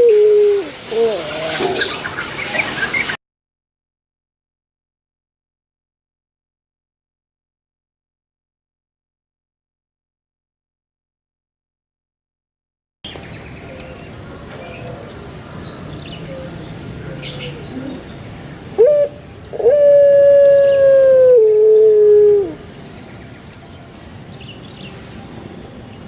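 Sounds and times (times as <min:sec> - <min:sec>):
long animal call: 0:18.8 - 0:22.6.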